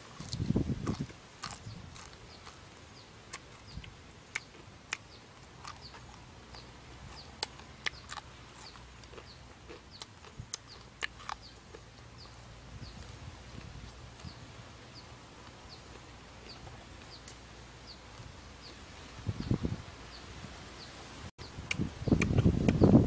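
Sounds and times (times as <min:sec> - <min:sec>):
person chewing and lip-smacking: 0:00.0 - 0:14.4, 0:21.6 - 0:22.8
bird chirping: 0:00.2 - 0:23.0.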